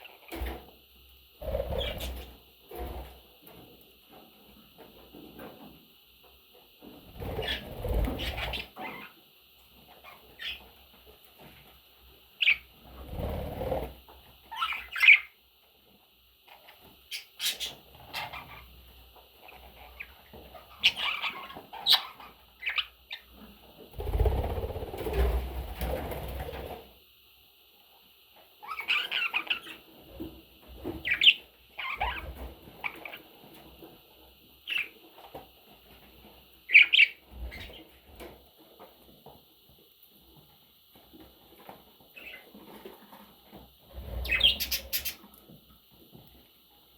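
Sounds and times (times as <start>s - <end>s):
budgerigar chirping: 44.2s - 45.2s.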